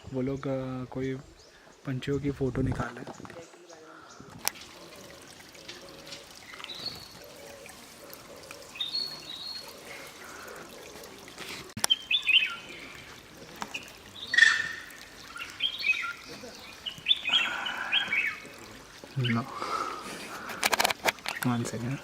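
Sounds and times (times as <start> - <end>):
faint trickling water: 0.1 - 22.0
birds chirping and whistling: 5.7 - 11.0, 11.8 - 18.5.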